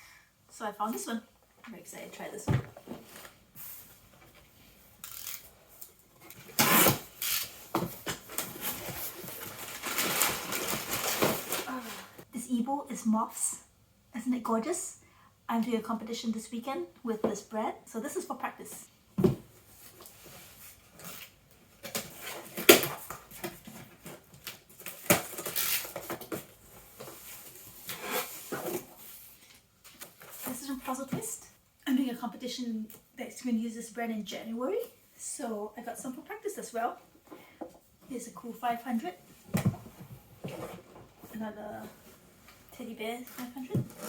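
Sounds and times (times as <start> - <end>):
cardboard boxes knocking and scraping: 19.2 - 19.6
cardboard boxes rubbing and scraping: 27.0 - 29.2.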